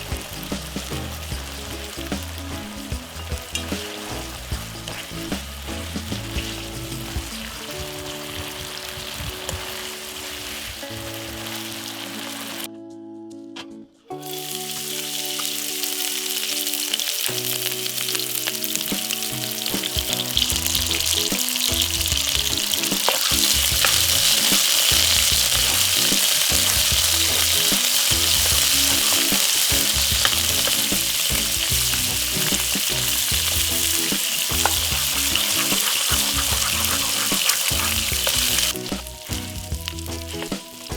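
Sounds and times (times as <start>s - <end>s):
food sizzling in a pan: 0.0s - 12.7s, 14.2s - 40.9s.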